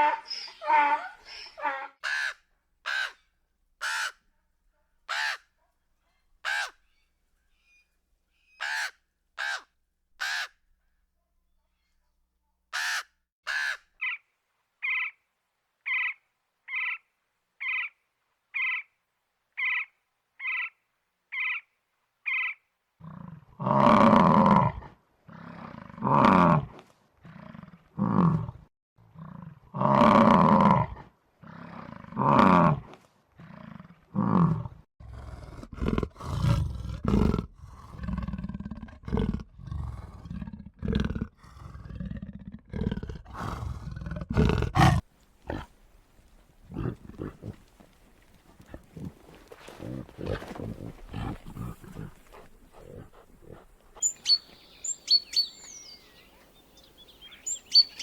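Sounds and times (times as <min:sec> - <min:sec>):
bird harsh calls: 0:00.0 - 0:04.2, 0:06.4 - 0:10.5, 0:54.0 - 0:58.0
big cat roaring: 0:23.0 - 0:45.7, 0:46.6 - 0:47.7, 0:48.6 - 0:53.8.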